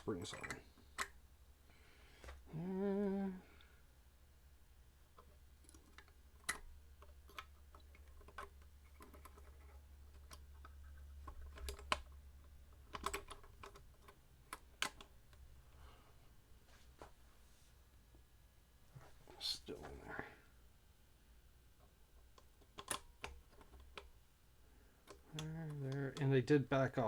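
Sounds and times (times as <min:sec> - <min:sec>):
small metallic clicks and taps: 0:00.1 - 0:01.2, 0:05.1 - 0:15.4.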